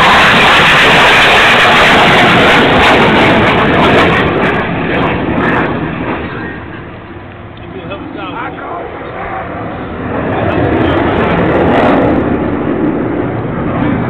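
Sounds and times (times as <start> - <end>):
jet roaring overhead: 0.0 - 14.0.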